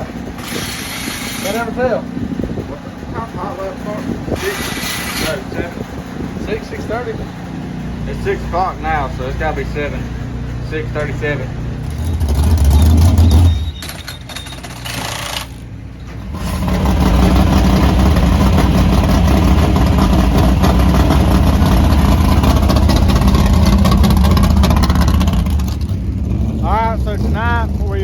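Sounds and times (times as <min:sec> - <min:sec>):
race car engine running: 0:00.0 - 0:28.0
loud low rumble: 0:16.2 - 0:28.0.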